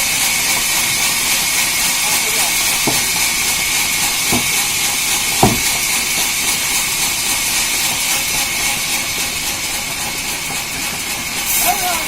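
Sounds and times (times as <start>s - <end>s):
sawmill machinery hissing: 0.0s - 12.0s
short thump: 2.8s - 3.1s, 5.4s - 5.8s.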